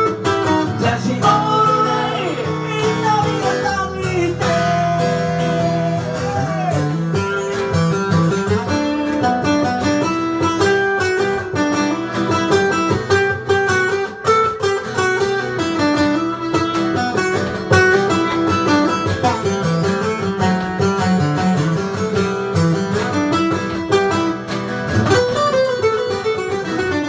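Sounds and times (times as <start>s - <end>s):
bass guitar: 0.0s - 14.2s
guitar melody: 0.0s - 27.0s.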